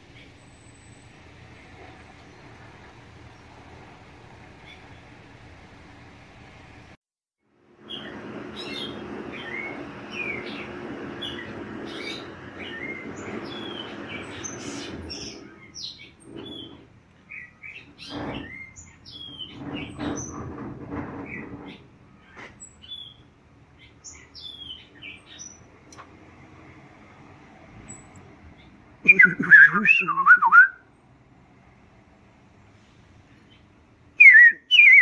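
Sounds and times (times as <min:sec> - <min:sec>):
small songbirds chirping: 0:04.5 - 0:05.2, 0:07.8 - 0:20.4, 0:21.3 - 0:26.0.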